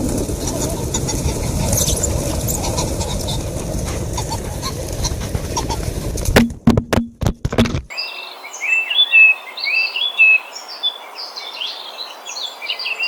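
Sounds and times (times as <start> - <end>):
steady low rumble: 0.0 - 7.4
faint bird chirps: 7.9 - 13.0.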